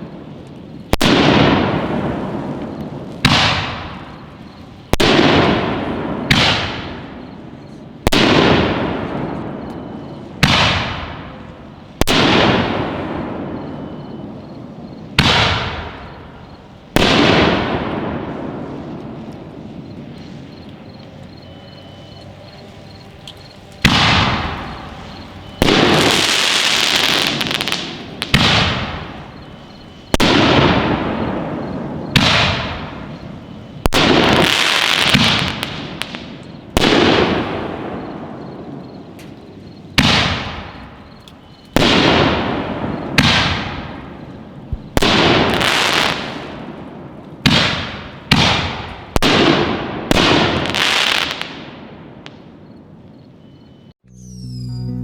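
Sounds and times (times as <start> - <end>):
firework hissing crackle: 0.0 - 7.4, 10.3 - 51.6
echo of booms: 0.0 - 20.6, 23.4 - 53.3
firework shells booming: 0.0 - 20.7, 23.2 - 53.5.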